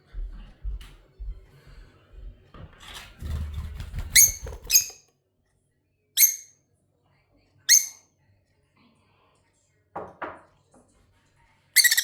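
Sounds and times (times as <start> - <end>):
lovebird chirps: 4.2 - 5.0, 6.2 - 6.5, 7.7 - 8.0, 11.8 - 12.0.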